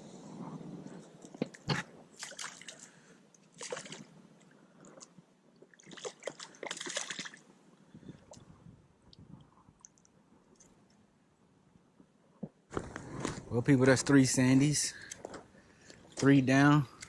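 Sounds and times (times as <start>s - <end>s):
water splashing and sloshing: 1.3s - 8.5s.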